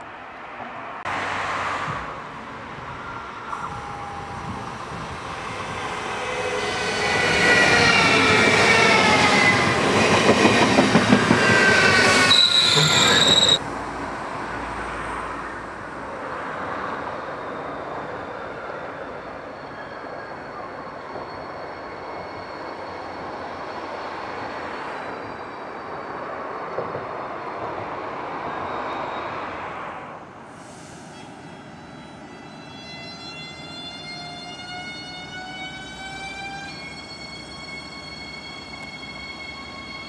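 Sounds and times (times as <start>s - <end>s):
train passing rumble: 0.0s - 25.0s
train approaching rail rumble: 0.0s - 40.0s
wheels squealing: 6.1s - 13.6s, 31.8s - 40.0s.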